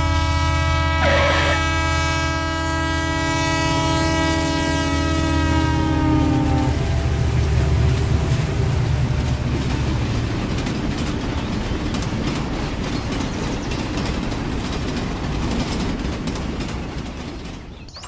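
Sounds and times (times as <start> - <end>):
train rumbling past: 0.0 - 18.0
wheels clicking over track joints: 9.2 - 18.0.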